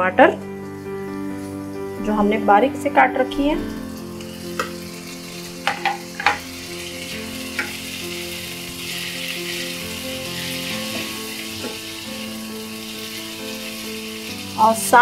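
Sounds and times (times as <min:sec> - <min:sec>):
vegetables sizzling in hot oil: 0:03.9 - 0:15.0.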